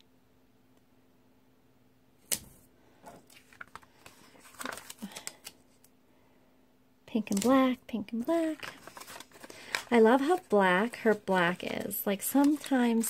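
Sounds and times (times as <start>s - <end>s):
stickers peeling and paper rustling: 3.2s - 5.9s, 7.2s - 13.0s.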